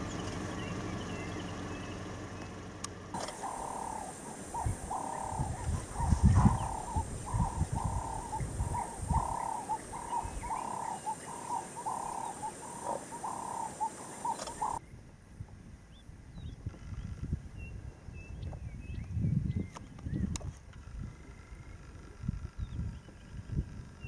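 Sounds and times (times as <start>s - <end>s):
bird cooing: 3.2s - 14.8s.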